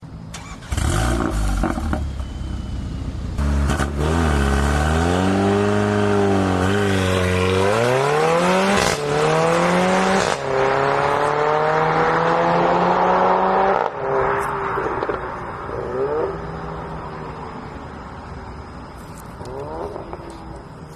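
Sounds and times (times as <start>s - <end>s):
car engine accelerating hard: 3.4s - 16.6s
exhaust cracks on upshifts: 19.0s - 20.9s.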